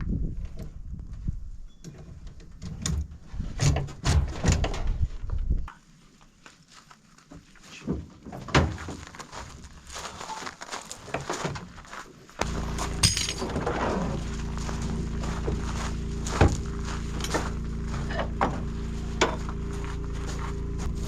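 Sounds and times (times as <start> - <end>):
low rumble: 12.4 - 21.0.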